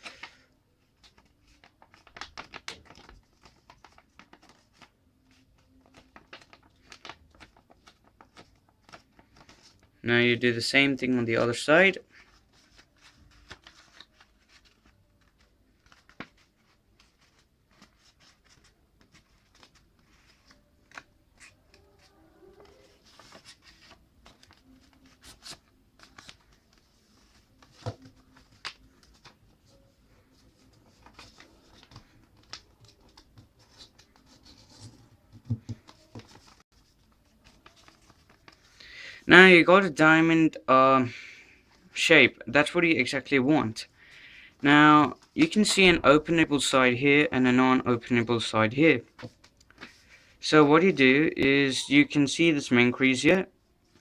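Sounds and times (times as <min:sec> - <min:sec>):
paper rustling and crinkling: 0:00.0 - 0:10.0, 0:12.0 - 0:38.8, 0:43.0 - 0:52.2, 0:53.0 - 0:54.0
taps pressing paper folds: 0:35.1 - 0:36.6.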